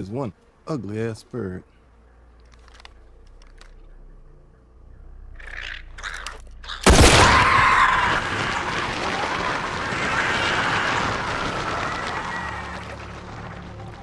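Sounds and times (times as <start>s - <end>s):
loud crash: 6.8s - 14.0s
loud din: 6.8s - 14.0s.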